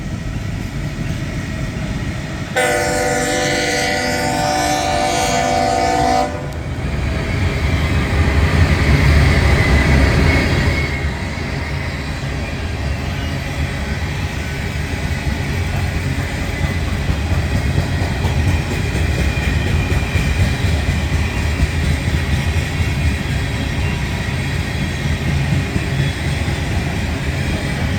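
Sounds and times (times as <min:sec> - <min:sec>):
diesel locomotive engine rumble: 0:00.0 - 0:27.9
train wheels rolling on rails: 0:00.0 - 0:27.9
train air horn chord: 0:02.6 - 0:06.6.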